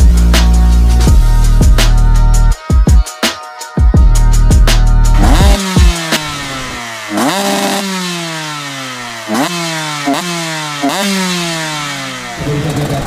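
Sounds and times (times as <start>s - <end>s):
dirt bike engine revving: 4.6s - 13.0s.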